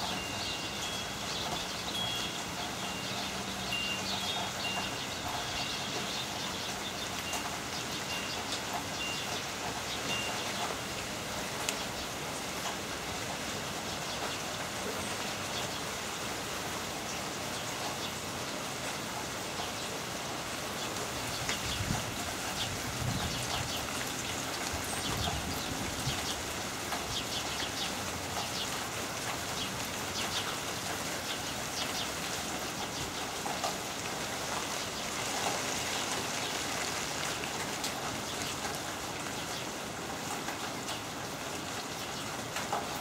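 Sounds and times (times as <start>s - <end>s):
heavy rain pouring: 0.0s - 43.0s
raindrops pattering: 0.0s - 43.0s
wind buffeting microphone: 21.5s - 23.9s, 24.6s - 26.5s.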